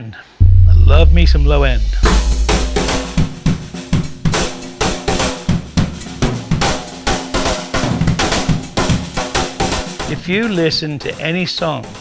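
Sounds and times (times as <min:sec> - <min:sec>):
sustained low note: 0:00.4 - 0:03.8
drum kit playing a beat: 0:00.4 - 0:10.8.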